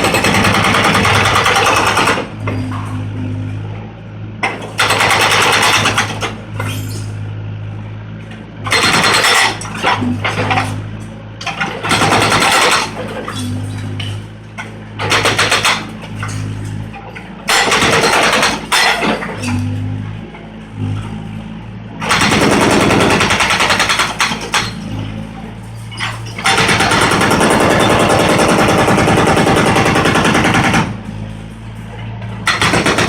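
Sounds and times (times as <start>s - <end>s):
excavator diesel engine running: 0.0s - 33.0s
concrete hammering and crashing: 11.4s - 19.8s, 22.0s - 25.0s.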